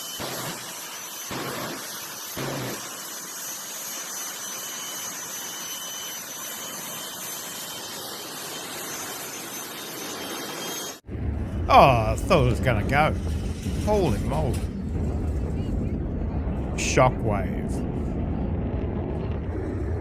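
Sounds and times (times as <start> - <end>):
jet engine roaring with turbine whine: 0.0 - 20.0.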